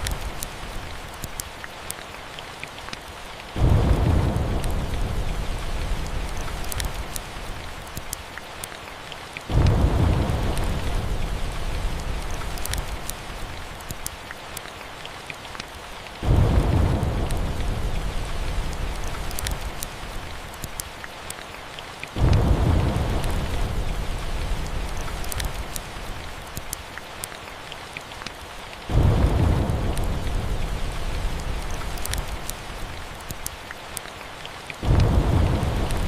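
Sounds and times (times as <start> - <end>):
wood fire crackling: 0.0 - 21.4, 22.0 - 36.0
steady rain: 0.0 - 36.0
thunder rumbling: 3.6 - 7.7, 9.5 - 13.6, 16.2 - 20.4, 22.2 - 26.1, 28.9 - 33.4, 34.8 - 36.0.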